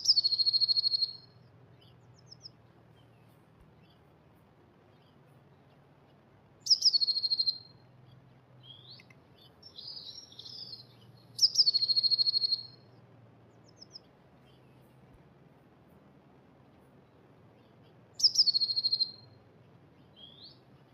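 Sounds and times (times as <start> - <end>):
bird song with fast trill: 0.0 - 4.1, 4.9 - 15.1, 17.0 - 20.9
soft bird twittering: 0.0 - 15.2, 16.7 - 20.9.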